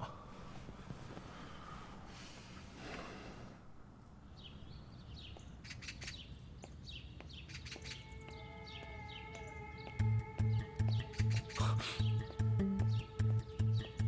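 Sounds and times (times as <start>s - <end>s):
small birds chirping: 4.0s - 14.0s.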